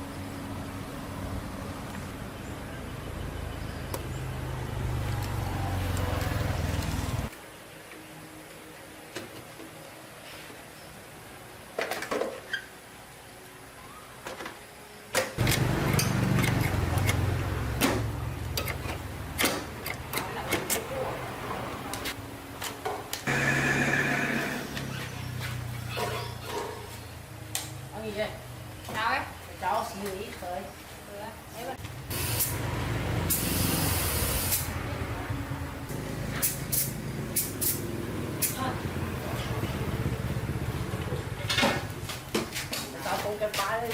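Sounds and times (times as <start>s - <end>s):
motor humming: 23.3s - 25.0s
spraying hiss: 32.1s - 34.8s.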